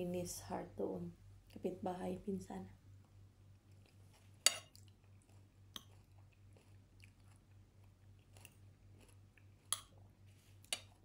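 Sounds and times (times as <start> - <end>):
low steady hum: 0.0 - 11.0
chewing and mouth clicks: 3.6 - 10.0.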